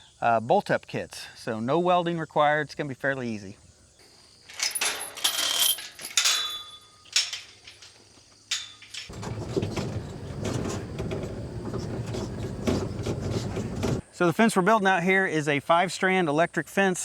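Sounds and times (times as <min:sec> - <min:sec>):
metallic clanks and knocks: 0:04.5 - 0:14.0.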